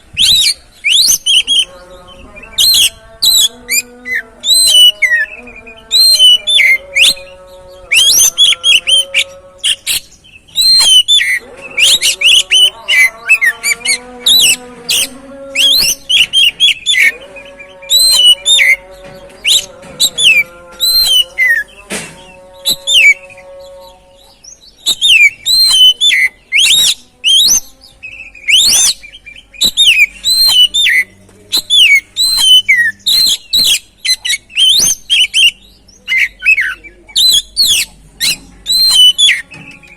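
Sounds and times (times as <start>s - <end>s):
bird whistles and chirps: 0.0s - 1.7s, 2.6s - 5.3s, 7.9s - 17.2s, 17.9s - 18.8s, 19.4s - 21.7s, 22.7s - 23.2s, 24.8s - 27.7s, 28.3s - 39.9s.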